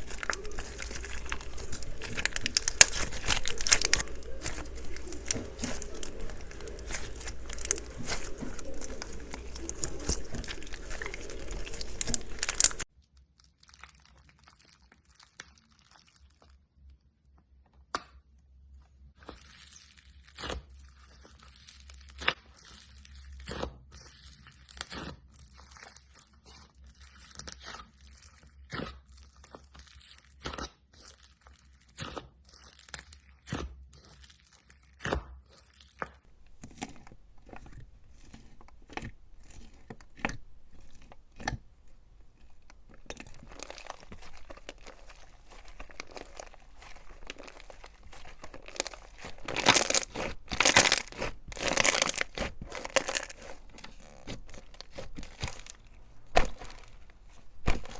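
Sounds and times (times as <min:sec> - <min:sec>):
slime crackling and popping: 0:00.0 - 0:12.9, 0:35.7 - 0:57.9.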